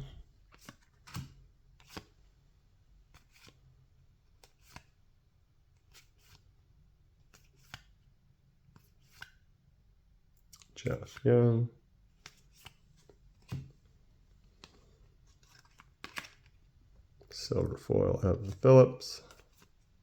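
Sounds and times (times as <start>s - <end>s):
cards flicking and sliding: 0.5s - 2.1s, 4.4s - 4.9s, 7.3s - 8.0s, 8.8s - 9.4s, 12.2s - 13.7s, 14.6s - 16.6s, 19.3s - 19.8s.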